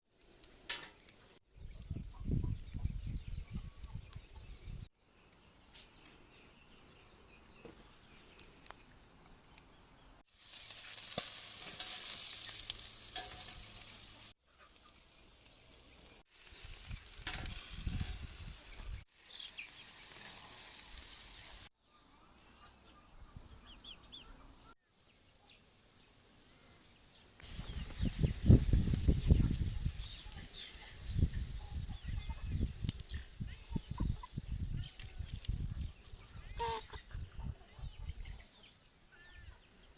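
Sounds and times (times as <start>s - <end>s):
meat sizzling over hot coals: 10.2s - 21.8s, 27.4s - 31.9s.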